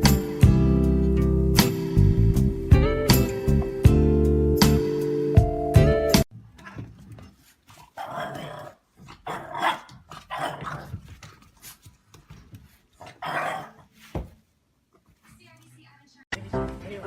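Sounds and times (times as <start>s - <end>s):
dog growling and barking: 7.8s - 11.0s, 13.0s - 13.9s.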